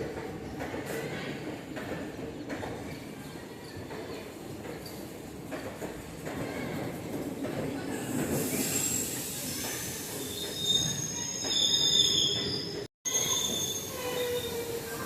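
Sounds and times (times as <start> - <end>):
train wheels squealing on rails: 7.8 - 15.0.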